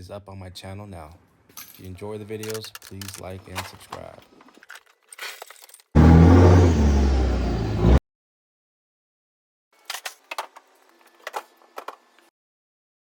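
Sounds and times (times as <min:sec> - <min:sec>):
vehicle engine running: 0:06.0 - 0:08.0.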